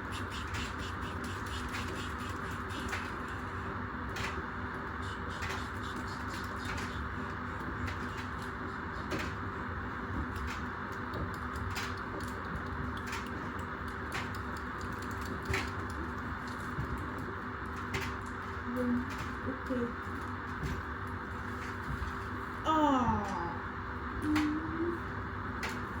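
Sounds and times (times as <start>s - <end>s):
appliance drum whirring: 0.0s - 26.0s.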